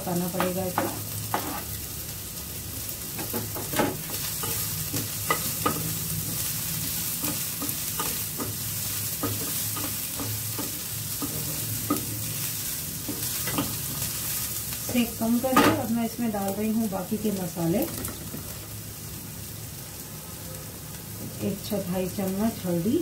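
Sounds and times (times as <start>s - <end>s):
onions sizzling in oil: 0.0s - 23.0s
spatula scraping and knocking pan: 0.4s - 1.7s, 3.2s - 12.3s, 13.0s - 14.0s.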